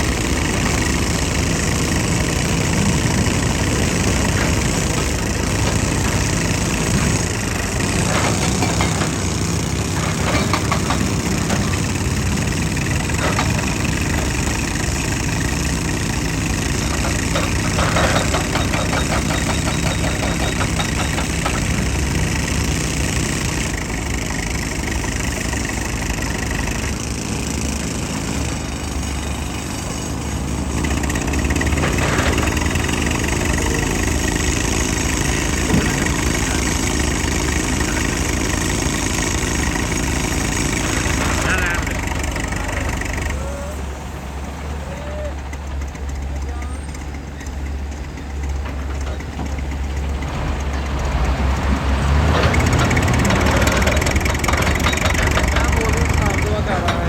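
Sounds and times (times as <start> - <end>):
rapid clattering ticks: 0.0 - 28.6, 45.6 - 57.0
excavator diesel engine running: 0.0 - 57.0.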